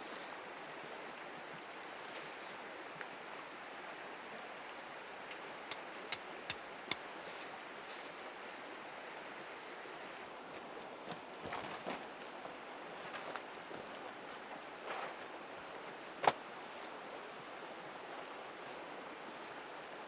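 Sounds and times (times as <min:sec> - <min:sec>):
river flowing: 0:00.0 - 0:11.4.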